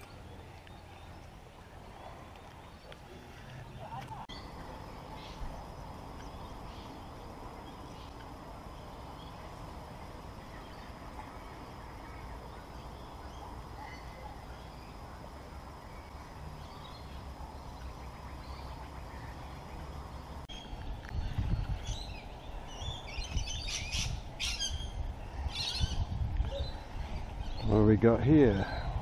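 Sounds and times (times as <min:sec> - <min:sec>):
wind rumble on microphone: 0:19.4 - 0:29.0.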